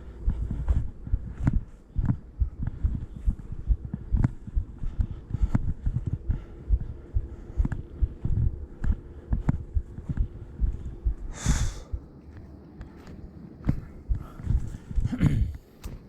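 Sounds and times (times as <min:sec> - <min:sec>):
sharp breath out: 0:11.3 - 0:11.9
footsteps thudding and scuffing: 0:11.5 - 0:16.0.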